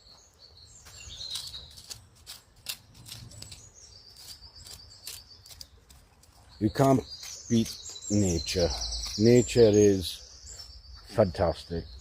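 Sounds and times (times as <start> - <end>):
songbirds singing trills: 0.0 - 12.0
stick digging in hard soil: 0.9 - 9.9.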